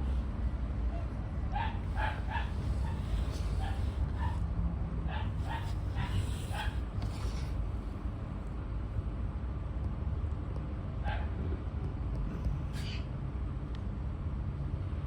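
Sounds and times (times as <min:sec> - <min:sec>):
steady low rumble: 0:00.0 - 0:12.7
animal yipping: 0:00.9 - 0:04.4, 0:05.1 - 0:06.8.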